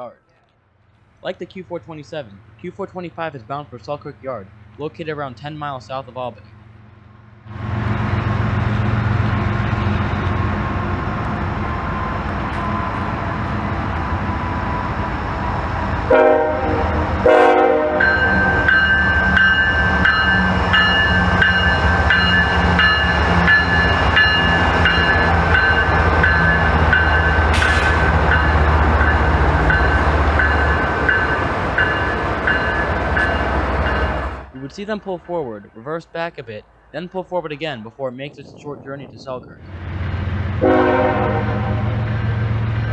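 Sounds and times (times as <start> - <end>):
diesel locomotive engines rumbling: 0.1 - 42.9
locomotive bell ringing: 11.4 - 36.8
train horn blasts: 11.9 - 21.4, 40.6 - 42.3.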